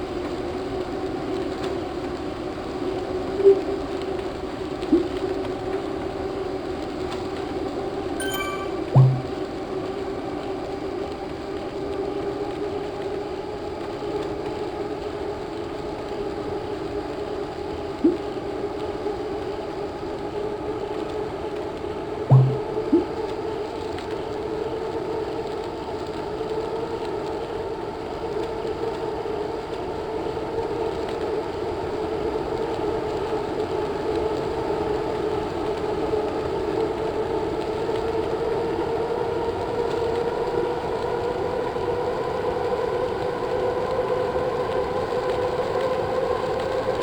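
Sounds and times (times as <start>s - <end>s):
short knock: 9.0s - 9.3s, 22.3s - 22.7s.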